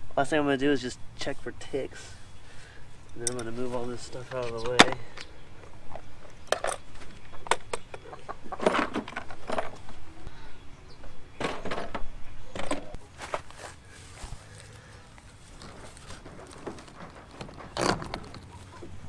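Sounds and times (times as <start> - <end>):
rattling: 1.2 - 13.6, 15.0 - 19.0
hard objects knocking and clattering: 4.4 - 13.0, 15.6 - 19.0.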